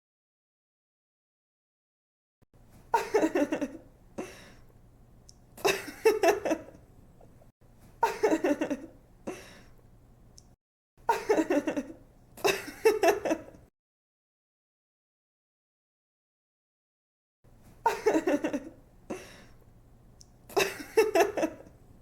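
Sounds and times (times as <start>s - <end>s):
young woman giggling: 2.9s - 4.4s, 5.6s - 6.8s, 8.0s - 9.5s, 11.1s - 13.6s, 17.8s - 19.4s, 20.5s - 21.7s.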